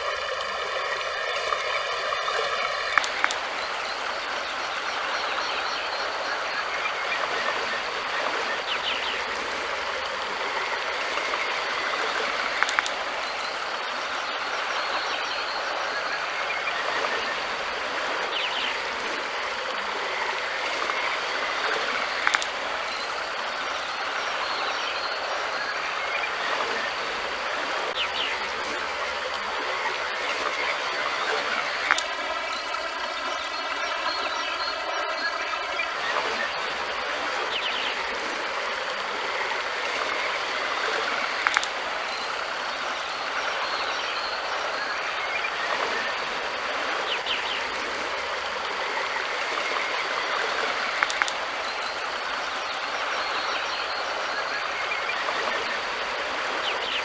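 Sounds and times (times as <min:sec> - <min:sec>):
river water rushing: 0:00.0 - 0:57.0
brief clicks: 0:41.4 - 0:41.8.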